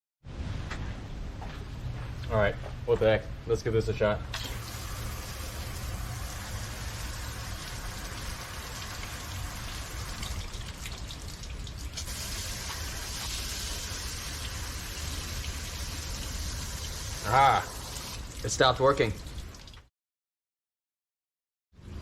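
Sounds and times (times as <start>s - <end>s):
hose water spraying on car: 4.4s - 19.6s.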